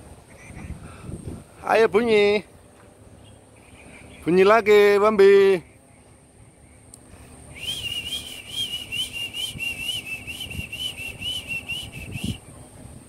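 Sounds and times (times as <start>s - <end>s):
songbird whistling: 7.5s - 12.5s.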